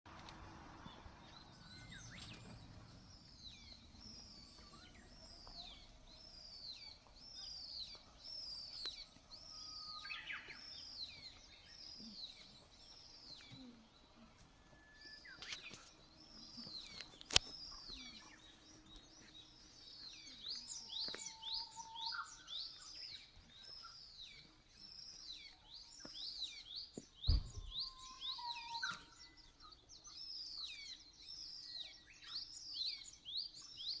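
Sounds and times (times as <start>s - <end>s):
songbirds calling: 0.1s - 34.0s
low thump: 27.2s - 27.9s.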